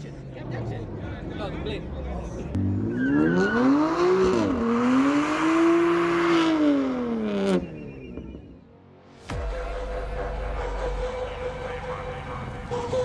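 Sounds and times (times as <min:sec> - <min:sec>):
car engine revving: 0:00.3 - 0:08.7.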